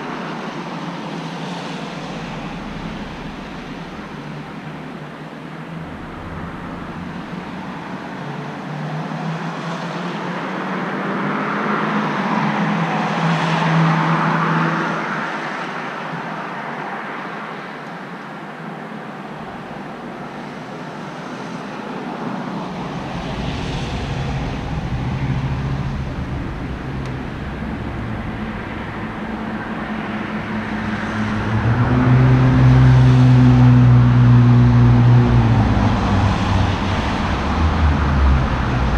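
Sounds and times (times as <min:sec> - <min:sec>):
engine hum: 0:00.0 - 0:09.7, 0:19.2 - 0:21.5, 0:22.3 - 0:38.9
vehicles passing: 0:00.0 - 0:38.9.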